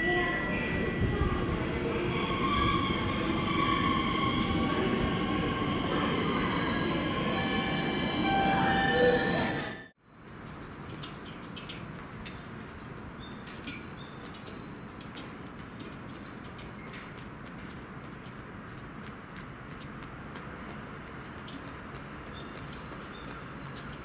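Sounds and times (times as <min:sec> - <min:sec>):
train rail rumble: 0:00.0 - 0:14.4.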